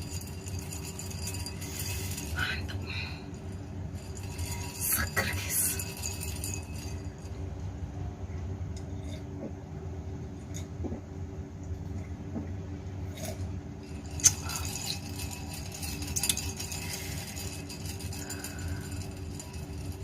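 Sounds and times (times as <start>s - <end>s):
glass clinking: 0.0s - 2.6s, 3.3s - 7.4s, 13.1s - 20.0s
steady low hum: 0.0s - 20.0s.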